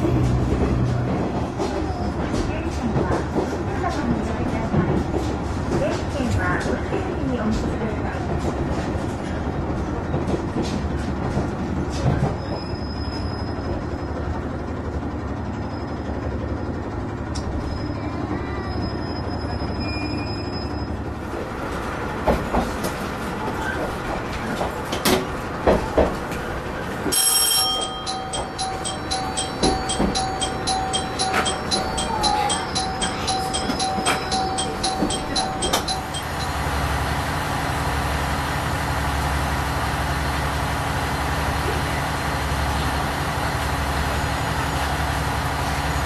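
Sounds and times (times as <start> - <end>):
train engine and wheels rumbling: 0.0 - 46.0
repeating beeping tone: 27.8 - 36.6.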